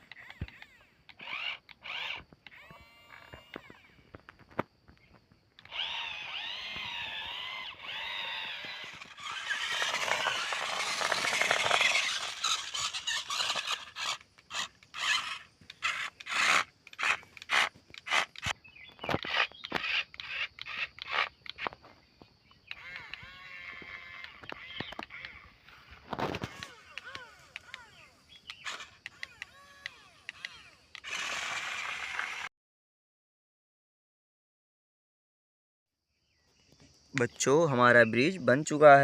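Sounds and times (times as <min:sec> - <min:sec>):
wavering high-pitched squeal: 0:05.7 - 0:17.2
rasping scrape: 0:05.7 - 0:18.5, 0:30.4 - 0:32.5
rhythmic scraping strokes: 0:07.3 - 0:18.5.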